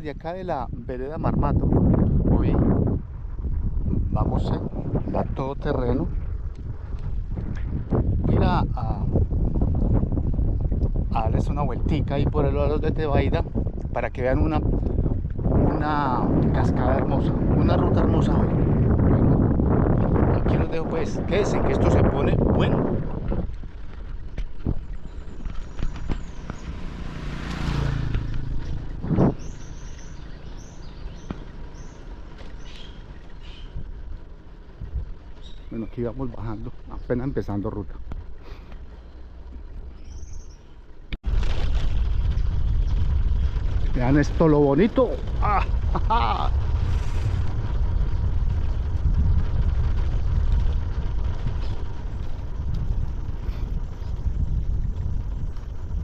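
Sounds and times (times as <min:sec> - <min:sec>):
low rumble: 0:00.0 - 0:56.0
birds chirping: 0:20.8 - 0:41.2, 0:51.0 - 0:56.0.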